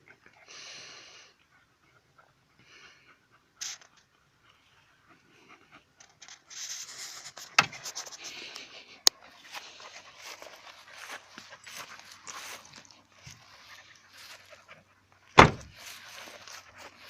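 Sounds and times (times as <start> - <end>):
puppies scuffling and scratching: 3.6 - 17.0
sharp knocks: 15.4 - 15.7.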